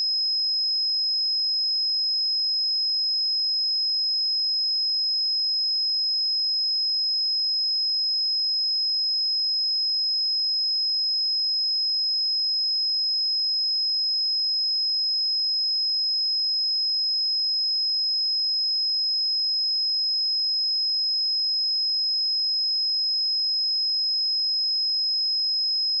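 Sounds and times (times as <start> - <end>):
high-pitched sine-wave test tone: 0.0 - 3.0.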